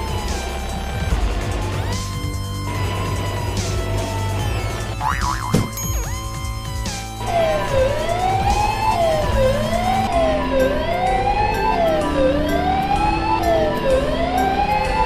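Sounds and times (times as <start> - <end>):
background music: 0.0 - 15.0
emergency siren wailing: 7.2 - 15.0.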